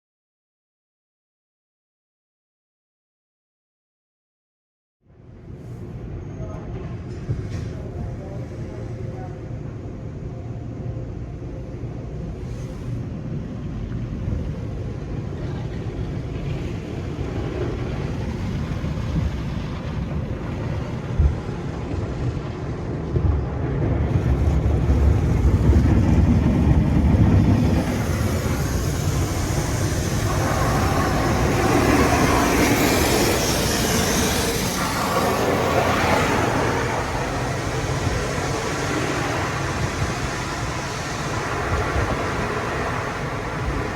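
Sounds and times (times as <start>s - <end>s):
low mechanical rumble: 5.1s - 43.9s
water spray hissing: 27.4s - 43.9s.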